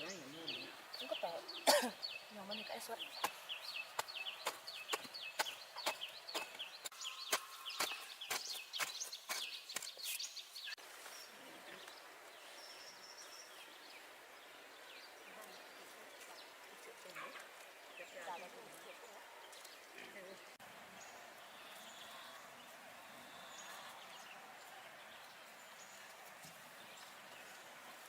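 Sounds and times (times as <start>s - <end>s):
falling bird chirps: 0.0s - 11.3s
faint outdoor ambience: 0.0s - 28.0s.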